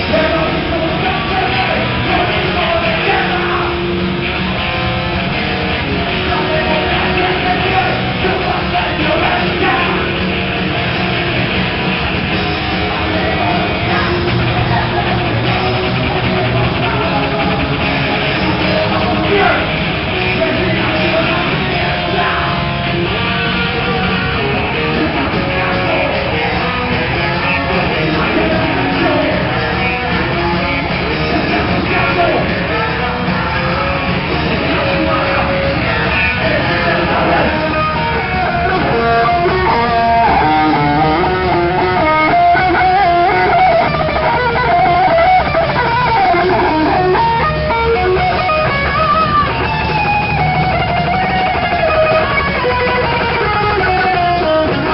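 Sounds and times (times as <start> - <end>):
lead guitar melody: 0.0 - 54.9
rock band playing: 0.0 - 54.9.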